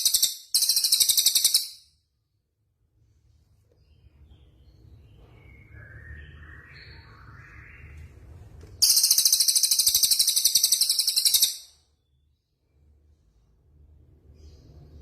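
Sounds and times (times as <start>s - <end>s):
songbird singing: 0.0s - 1.8s, 3.7s - 12.6s.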